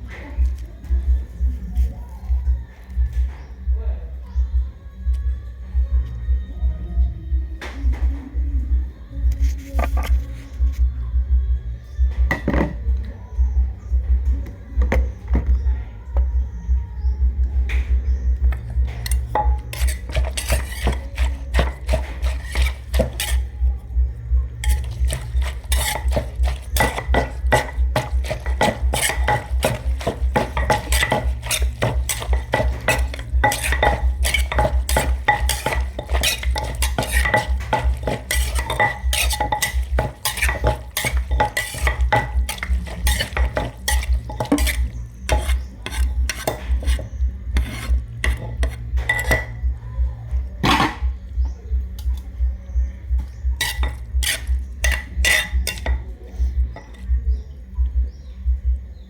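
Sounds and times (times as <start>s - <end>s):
pestle pounding in a mortar: 18.3s - 49.8s, 52.7s - 57.5s
spoon clinking against bowl: 19.0s - 23.5s, 24.6s - 47.0s, 47.6s - 49.6s, 53.6s - 56.0s.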